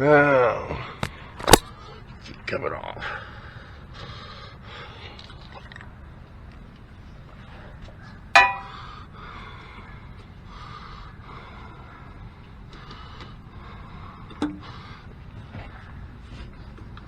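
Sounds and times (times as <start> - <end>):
sharp metallic clank: 1.4 - 1.7.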